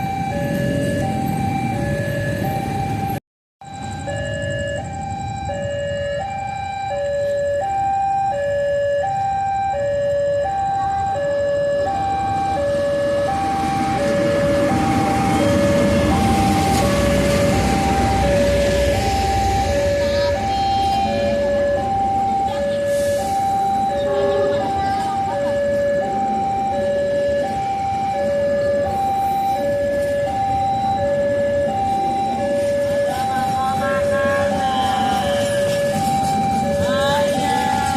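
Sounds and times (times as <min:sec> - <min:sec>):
two-tone level crossing alarm: 0:00.0 - 0:37.9
broad rumbling noise: 0:12.1 - 0:28.9.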